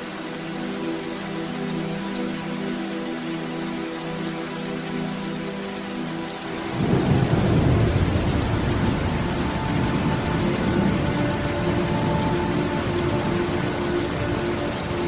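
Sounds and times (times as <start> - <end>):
steady rain falling: 0.0 - 15.0
deep thunder rumbling: 6.8 - 11.0.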